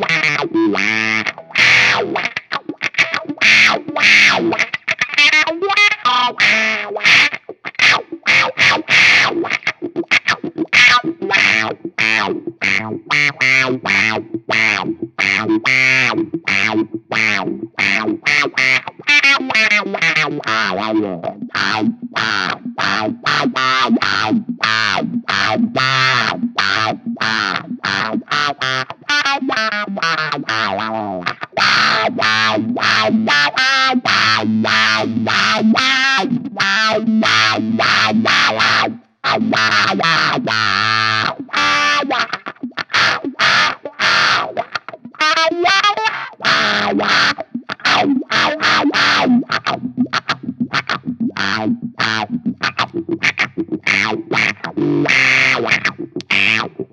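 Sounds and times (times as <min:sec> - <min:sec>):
distorted electric guitar riffs: 0:00.0 - 0:56.9.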